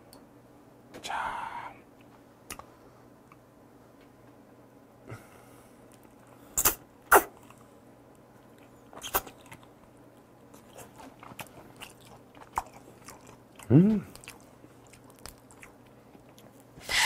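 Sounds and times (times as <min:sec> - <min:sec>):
soft mouth clicks: 0:02.5 - 0:02.7
mouth smacks chewing: 0:08.4 - 0:16.7.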